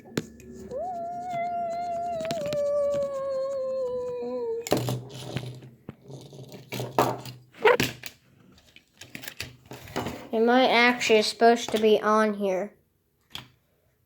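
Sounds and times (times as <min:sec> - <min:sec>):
person humming a sliding note: 0:00.4 - 0:04.6.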